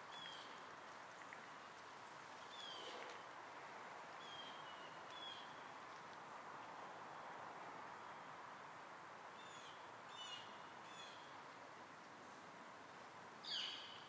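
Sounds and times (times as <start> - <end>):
faint background hiss: 0.0 - 14.0
small birds chirping: 0.1 - 1.4.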